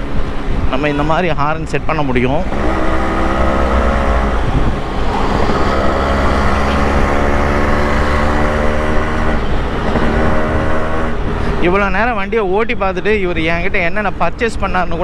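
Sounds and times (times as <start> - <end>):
road rumble: 0.0 - 15.0
wind: 0.0 - 15.0
motorcycle engine running: 2.5 - 11.3.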